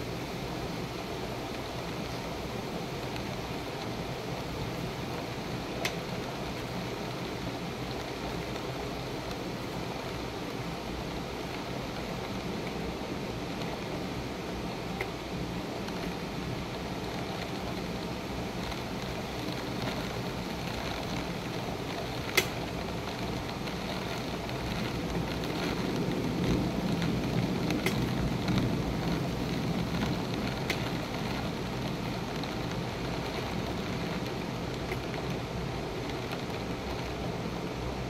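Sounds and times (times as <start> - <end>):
steady rain: 0.0 - 38.0
thunder rumble: 24.0 - 34.1.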